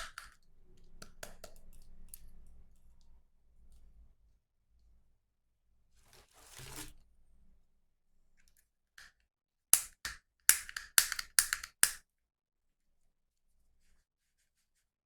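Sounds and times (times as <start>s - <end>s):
plastic clicks and snaps: 9.8s - 12.0s.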